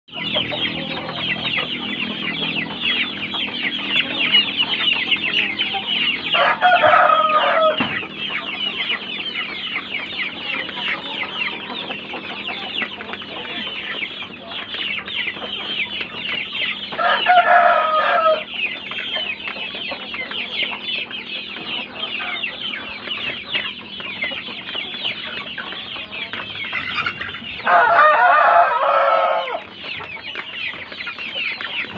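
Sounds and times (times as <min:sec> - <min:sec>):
chickens chattering: 0:00.1 - 0:31.9
rooster crowing: 0:06.2 - 0:08.0, 0:16.9 - 0:18.5, 0:27.6 - 0:29.7.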